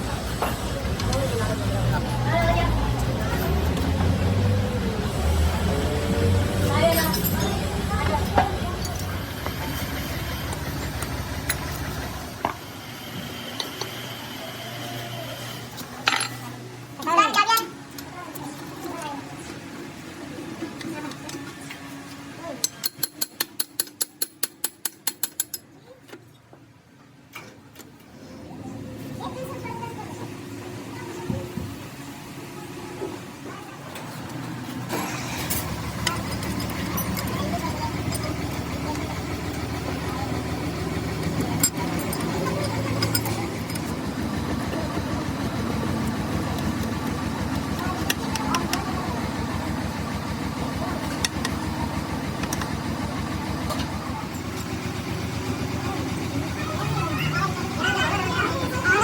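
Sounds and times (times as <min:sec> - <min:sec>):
engine idling: 0:00.0 - 0:12.6, 0:34.8 - 0:59.0.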